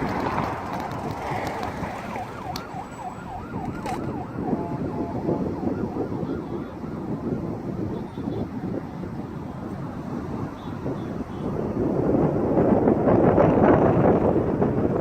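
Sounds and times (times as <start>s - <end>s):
emergency siren yelping: 1.6s - 9.6s.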